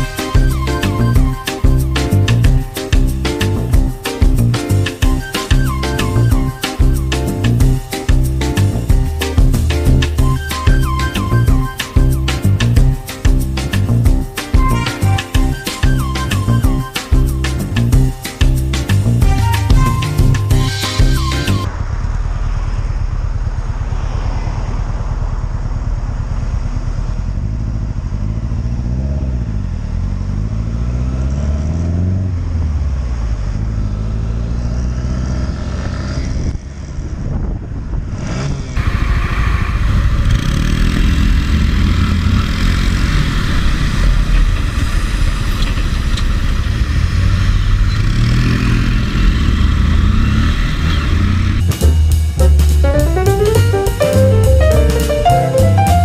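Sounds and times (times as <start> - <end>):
motorcycle engine accelerating: 21.4 - 56.0.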